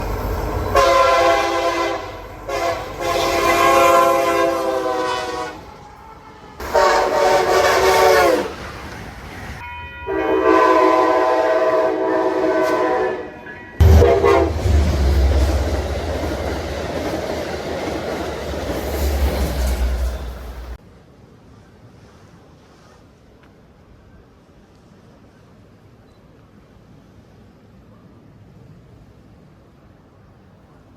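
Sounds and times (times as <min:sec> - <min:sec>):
train wheels rumbling on rail: 0:00.0 - 0:20.8
train chime horn blasts: 0:00.6 - 0:05.6, 0:06.6 - 0:08.5, 0:09.6 - 0:16.0.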